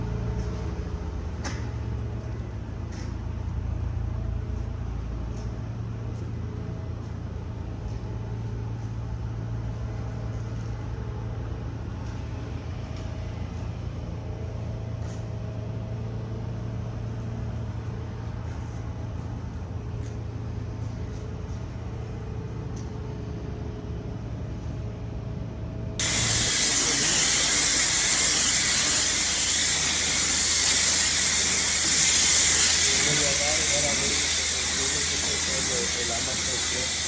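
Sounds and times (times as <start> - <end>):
pressure washer humming: 26.0 - 37.0
water jet spraying on concrete: 26.0 - 37.0.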